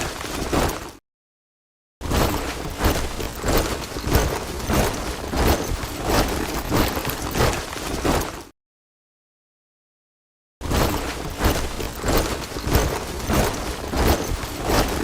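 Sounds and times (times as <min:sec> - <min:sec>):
soldiers' boots marching in step: 0:02.2 - 0:08.5, 0:10.8 - 0:15.0.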